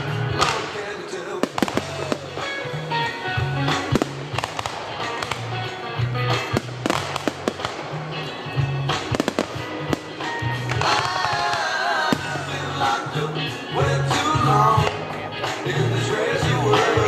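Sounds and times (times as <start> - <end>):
fireworks banging and cracking: 0.0 - 13.2
loud music with bass line: 0.0 - 17.0.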